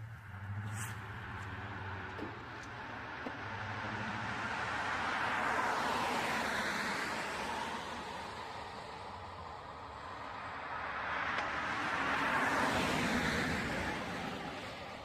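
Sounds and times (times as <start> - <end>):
motor vehicle rushing: 0.0 - 8.5.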